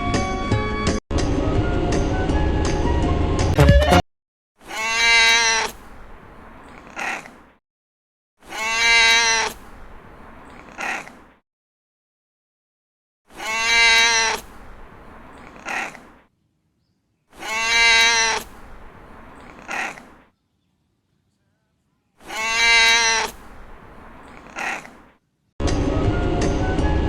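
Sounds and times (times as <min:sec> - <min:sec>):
cat meowing: 0:04.7 - 0:05.8, 0:08.5 - 0:09.6, 0:13.4 - 0:14.6, 0:17.4 - 0:18.6, 0:22.2 - 0:23.5.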